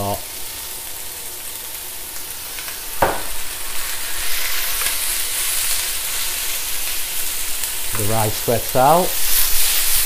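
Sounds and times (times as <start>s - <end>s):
food sizzling in a wok: 0.0s - 10.0s
spatula stir-frying: 0.0s - 10.0s
sharp knock: 3.0s - 3.4s.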